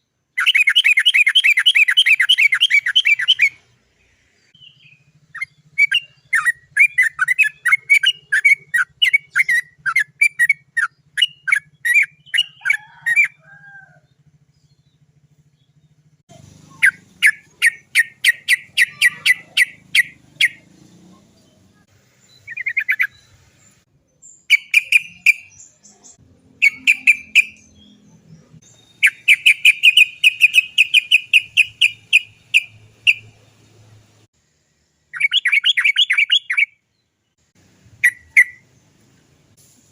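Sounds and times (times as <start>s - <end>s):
bird chattering call: 16.3s - 20.7s, 26.6s - 28.2s, 28.9s - 33.3s.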